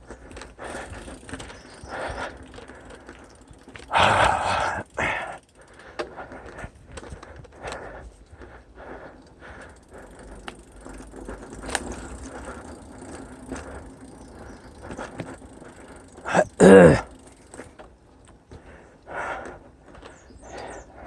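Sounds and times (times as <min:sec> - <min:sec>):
mountain bike rattling: 0:00.0 - 0:21.0.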